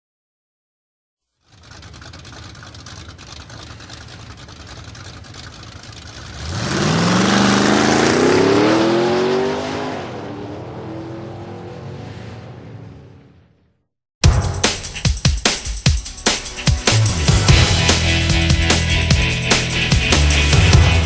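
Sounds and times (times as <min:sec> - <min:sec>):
motorcycle engine accelerating: 0:01.4 - 0:12.4, 0:16.8 - 0:21.0.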